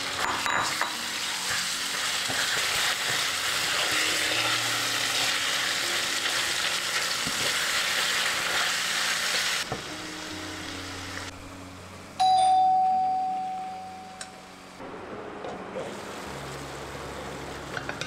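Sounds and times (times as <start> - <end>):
food sizzling in a pan: 0.0 - 11.3
bright ding: 12.2 - 14.4.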